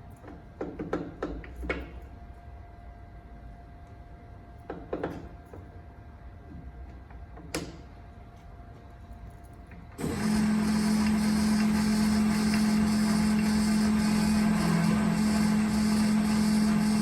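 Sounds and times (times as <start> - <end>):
lathe motor humming and whirring: 10.0 - 17.0.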